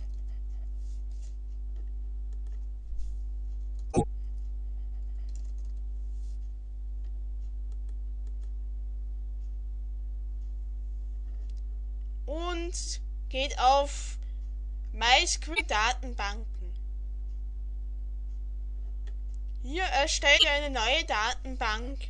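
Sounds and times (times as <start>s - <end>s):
electrical hum: 0.0s - 22.0s
keyboard typing: 5.0s - 5.8s.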